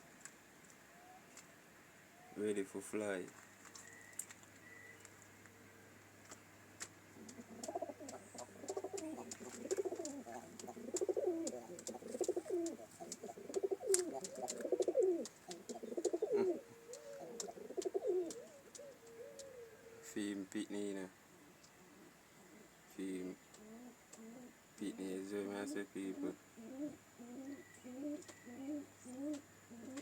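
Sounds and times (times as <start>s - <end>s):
pigeons cooing: 7.1s - 20.3s, 21.3s - 30.0s.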